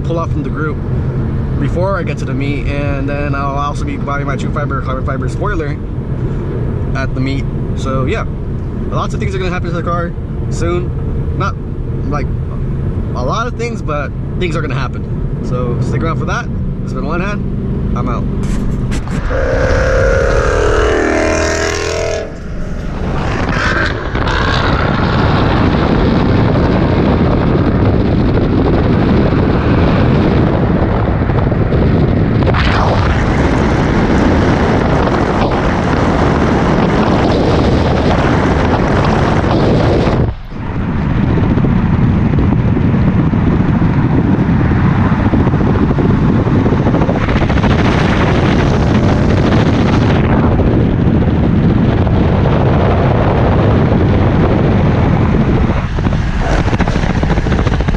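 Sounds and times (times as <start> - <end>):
cars driving: 16.4 - 25.9.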